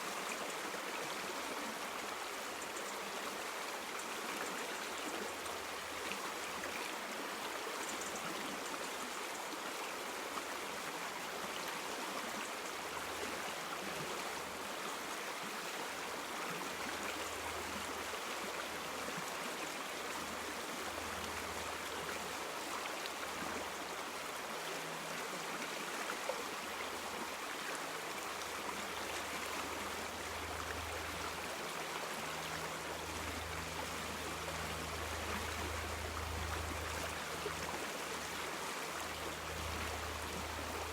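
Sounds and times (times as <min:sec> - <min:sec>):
river water rushing: 0:12.8 - 0:40.9.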